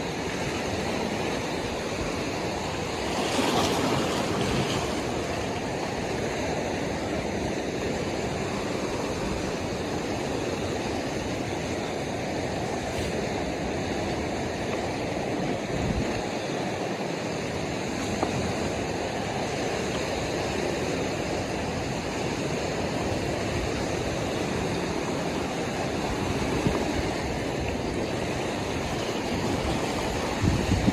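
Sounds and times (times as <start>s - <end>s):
ocean surf washing on shore: 0.0s - 30.9s.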